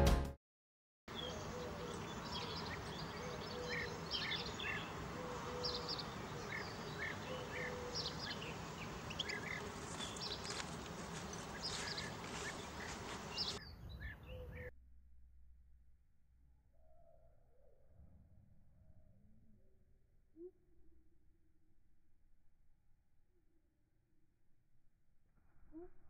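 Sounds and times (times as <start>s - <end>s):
steady background noise: 1.1s - 13.6s
small birds chirping: 1.1s - 14.7s
low hum: 1.5s - 26.0s.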